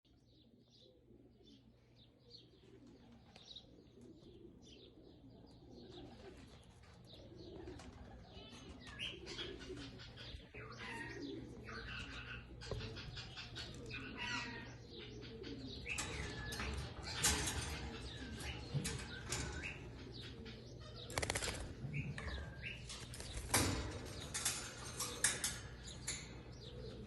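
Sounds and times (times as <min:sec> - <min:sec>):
budgerigars chattering and chirping: 0:08.9 - 0:21.3.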